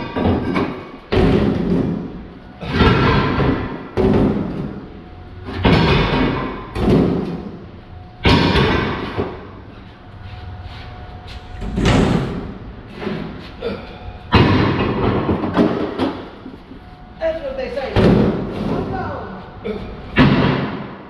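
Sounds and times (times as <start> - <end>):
metal scrap clanking and thudding: 5.4 - 7.5, 14.3 - 16.4.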